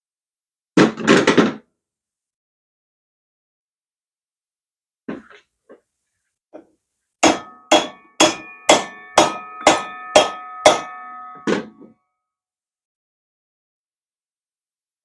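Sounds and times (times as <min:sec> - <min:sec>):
hammer blows on metal: 0:07.2 - 0:11.8.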